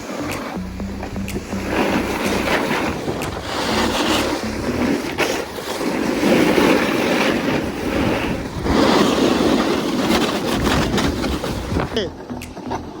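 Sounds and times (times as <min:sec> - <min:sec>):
wind rushing on microphone: 0:01.1 - 0:06.2, 0:07.3 - 0:12.0
snowboard scraping icy snow: 0:01.3 - 0:12.0.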